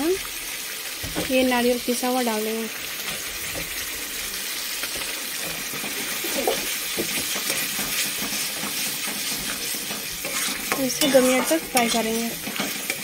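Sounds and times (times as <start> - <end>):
food sizzling in a pan: 0.0 - 13.0
metal spatula scraping a pan: 4.9 - 13.0.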